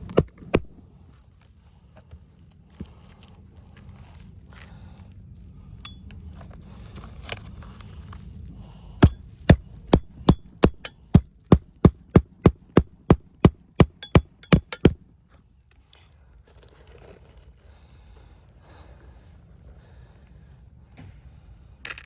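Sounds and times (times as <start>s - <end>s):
hammer driving roofing nails: 0.0s - 0.8s, 9.0s - 15.0s.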